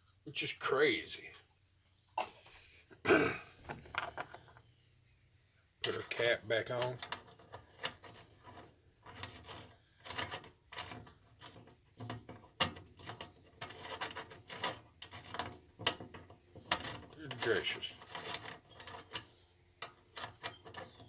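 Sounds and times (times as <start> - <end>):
metal cap scraping on threads: 5.8 - 21.0.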